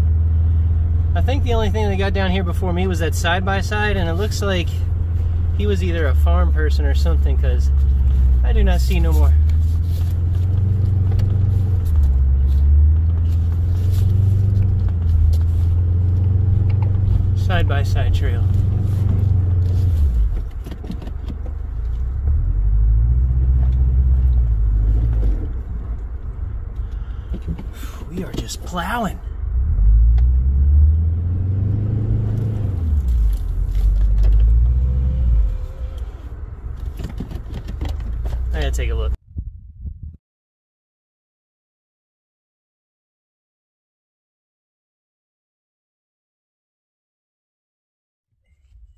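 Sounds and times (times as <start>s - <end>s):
vehicle engine droning: 0.0s - 39.2s.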